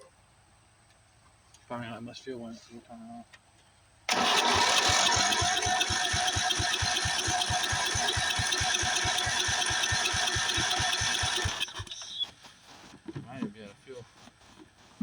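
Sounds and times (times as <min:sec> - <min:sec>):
electric starter cranking engine: 0:04.1 - 0:12.2.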